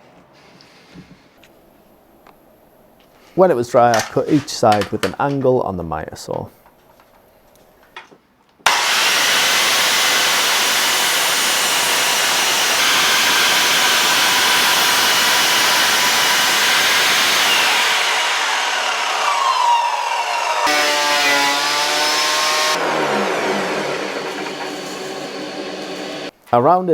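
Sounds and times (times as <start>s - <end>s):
miter saw motor whine: 8.7s - 26.3s.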